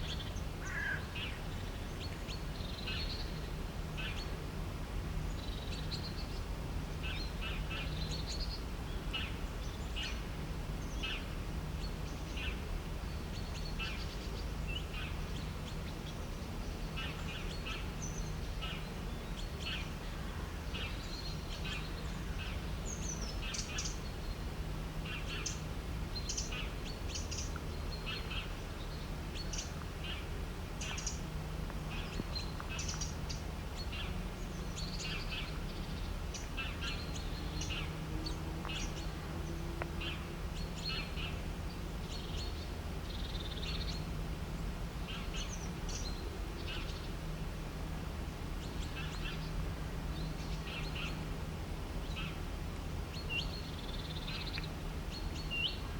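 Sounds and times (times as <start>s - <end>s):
small birds chirping: 0.0s - 4.4s, 5.2s - 47.4s, 48.5s - 51.3s, 52.0s - 55.9s.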